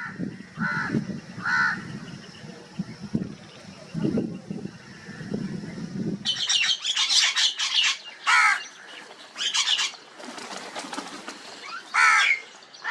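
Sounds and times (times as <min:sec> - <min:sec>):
crows cawing: 0:00.0 - 0:01.9, 0:07.0 - 0:09.9, 0:11.9 - 0:12.9.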